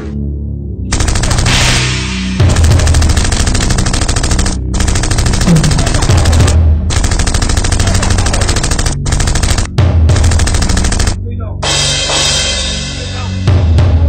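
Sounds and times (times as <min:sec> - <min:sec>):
rapid automatic gunfire: 0:00.9 - 0:11.2.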